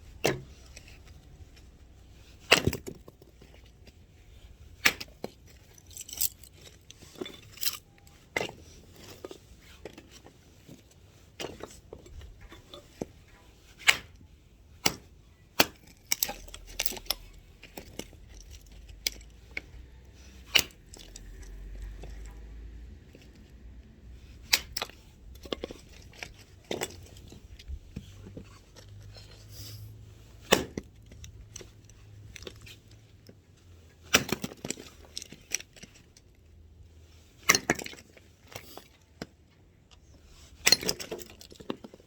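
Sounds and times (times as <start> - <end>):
axe splitting firewood: 30.5 - 30.8.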